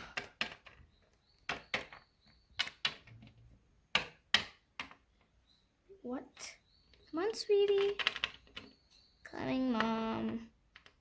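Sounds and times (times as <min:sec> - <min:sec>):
plastic toy figures tapping: 0:00.0 - 0:05.4, 0:06.9 - 0:08.8, 0:09.5 - 0:11.0.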